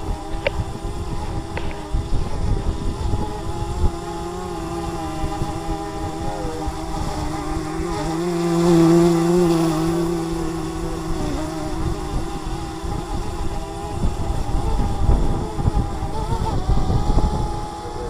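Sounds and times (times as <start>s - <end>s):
drone propellers humming: 0.0s - 18.0s
wind buffeting microphone: 0.0s - 18.0s.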